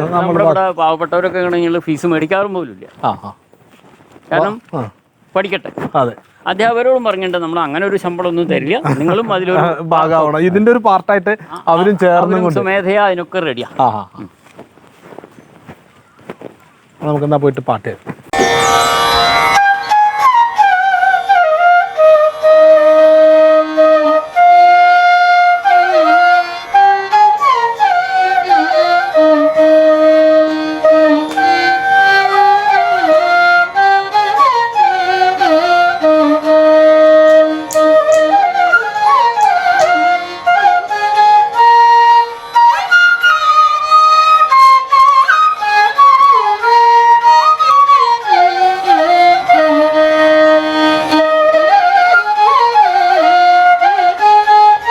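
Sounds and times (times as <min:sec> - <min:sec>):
flute melody: 0:00.0 - 0:01.6, 0:18.3 - 0:54.9.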